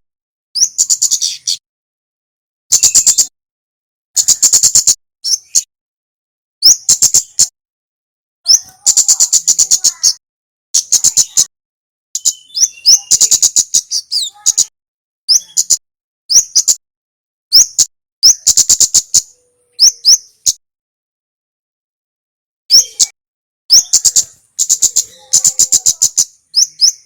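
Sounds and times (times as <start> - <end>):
songbird high chattering: 0.6 - 1.6, 2.7 - 3.3, 4.2 - 5.7, 6.6 - 7.5, 8.5 - 10.2, 10.8 - 11.5, 12.2 - 14.7, 15.3 - 16.8, 17.5 - 20.6, 22.7 - 27.0.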